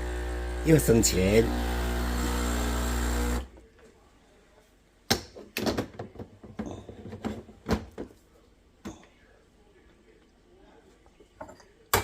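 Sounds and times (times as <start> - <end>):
motor hum: 0.0 - 3.5.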